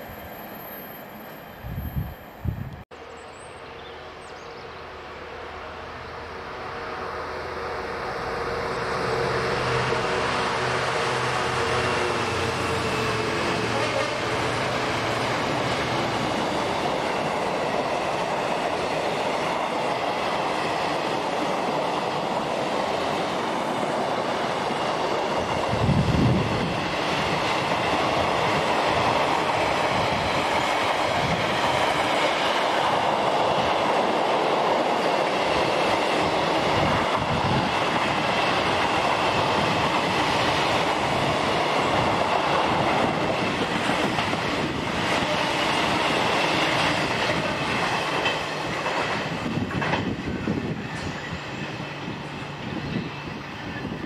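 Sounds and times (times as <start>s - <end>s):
freight train wheels on rail: 0.0s - 54.0s.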